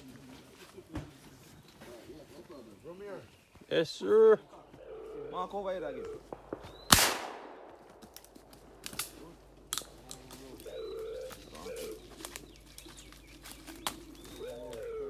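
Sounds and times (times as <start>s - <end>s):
doves cooing: 4.0s - 15.0s
faint sharp cracks: 6.2s - 10.7s
shotgun shot: 6.3s - 9.3s.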